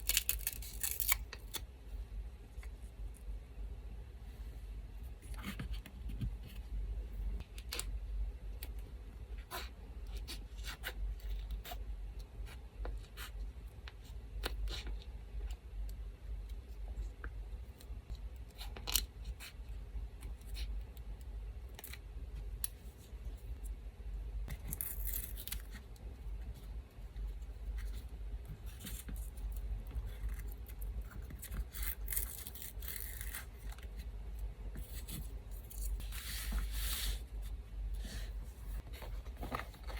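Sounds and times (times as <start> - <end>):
scissors snipping paper: 0.0 - 1.6.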